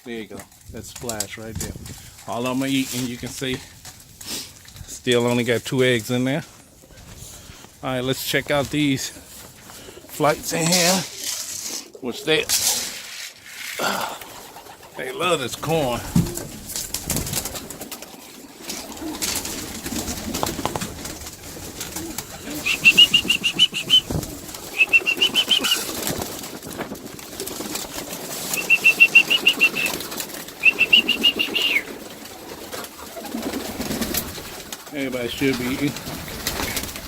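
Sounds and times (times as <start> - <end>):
clicks and rustles: 0.0 - 37.0
pigeons cooing: 13.8 - 37.0
pigeons flapping wings: 13.9 - 37.0
high-pitched trilled call: 22.6 - 25.9, 28.5 - 30.0, 30.6 - 31.9.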